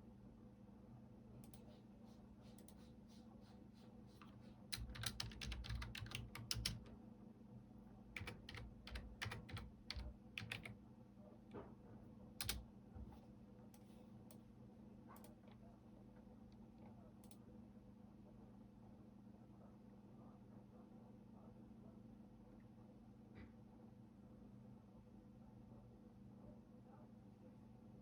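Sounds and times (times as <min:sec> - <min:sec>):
computer keyboard typing: 0:04.7 - 0:07.0, 0:08.2 - 0:10.8, 0:12.4 - 0:12.7.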